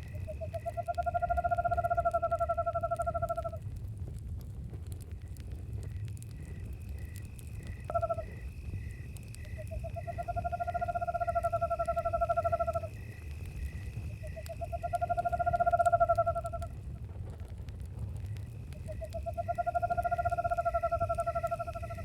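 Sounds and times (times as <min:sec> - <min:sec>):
crickets chirping: 0:00.0 - 0:03.7, 0:04.8 - 0:22.0
campfire crackle and rumble: 0:00.0 - 0:22.0
high insect drone: 0:05.8 - 0:16.8, 0:18.3 - 0:22.0
owl call and trills: 0:07.9 - 0:08.3, 0:09.6 - 0:13.0, 0:18.8 - 0:22.0.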